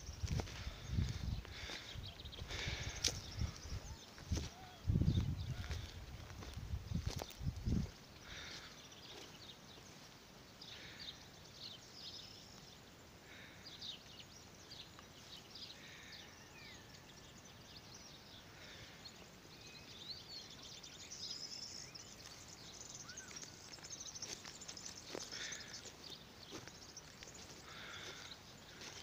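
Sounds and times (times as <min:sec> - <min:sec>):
faint birds chirping and whistling: 0:00.0 - 0:29.0
low outdoor hiss: 0:06.0 - 0:28.8.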